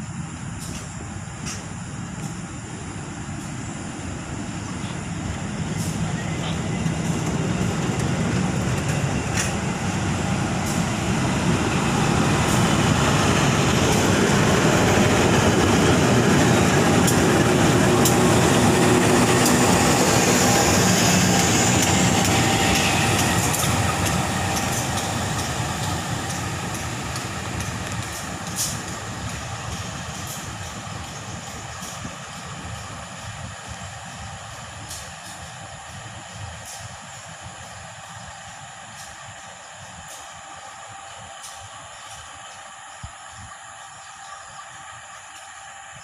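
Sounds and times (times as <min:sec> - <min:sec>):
train rolling past: 0:00.0 - 0:46.0
wheels clicking over rail joints: 0:05.8 - 0:09.8, 0:21.3 - 0:32.4.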